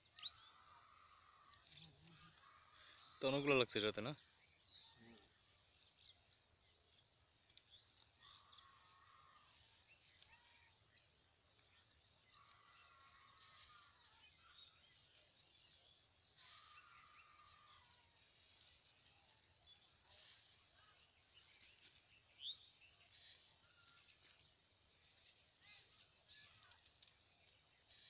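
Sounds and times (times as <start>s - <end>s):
faint light ticks: 7.4s - 8.1s
distant bird calling: 12.1s - 24.4s.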